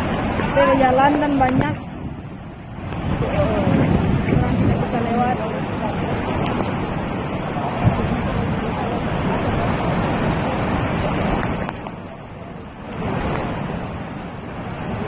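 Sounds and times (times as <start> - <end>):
waterfall rushing and crashing: 0.0 - 15.0
wind on microphone: 0.0 - 15.0.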